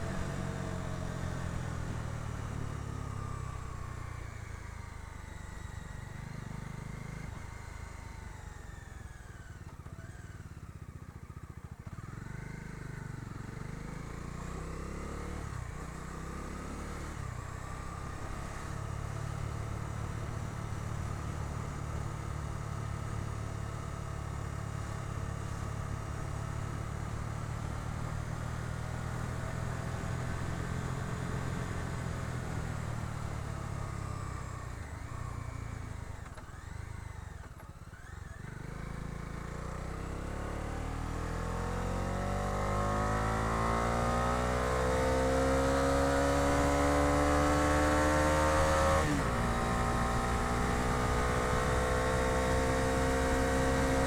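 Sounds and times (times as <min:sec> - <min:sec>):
motorcycle engine while riding: 0:00.0 - 0:54.0.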